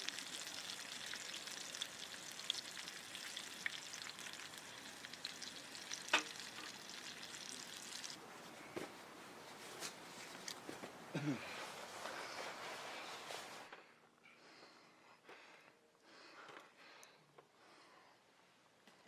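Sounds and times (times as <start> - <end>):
food frying with pops: 0.0 - 8.2.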